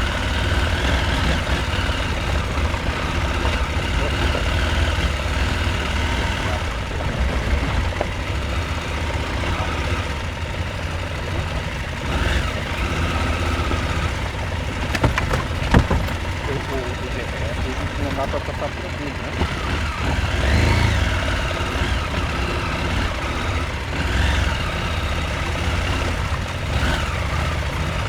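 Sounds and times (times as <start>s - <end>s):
motorcycle engine running: 0.0s - 28.0s
sharp knocks: 13.8s - 16.5s.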